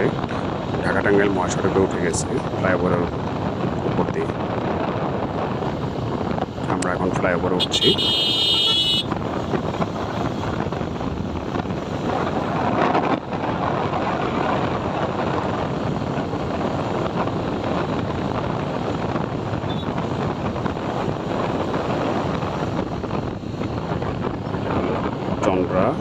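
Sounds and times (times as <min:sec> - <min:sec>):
wind rushing over microphone: 0:00.0 - 0:26.0
motorcycle engine: 0:07.6 - 0:25.2.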